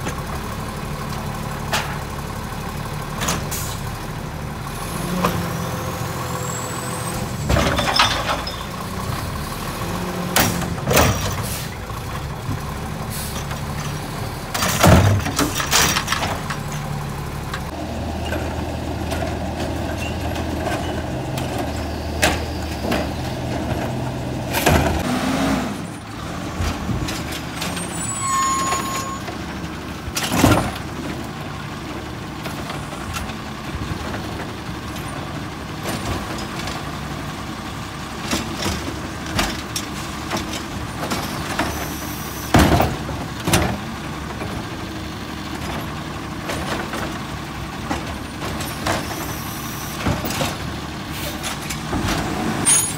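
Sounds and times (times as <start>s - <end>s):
garbage truck running: 0.0s - 52.9s
carts banging on truck: 14.5s - 16.9s, 42.5s - 44.6s.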